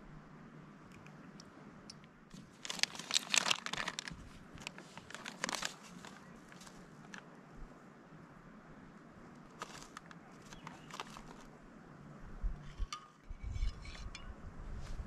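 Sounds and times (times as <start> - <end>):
crinkling handling noise: 2.3 - 7.4, 9.3 - 11.6.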